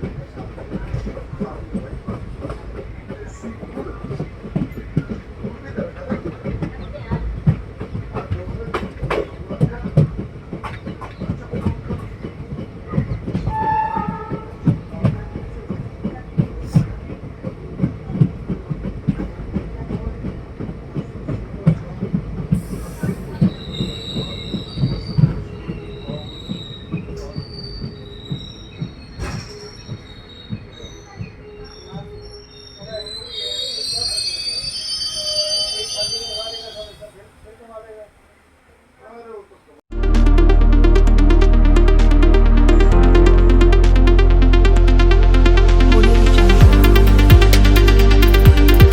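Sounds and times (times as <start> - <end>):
train coach rumbling on track: 0.0 - 31.9
high-pitched metallic squeals: 23.5 - 37.0.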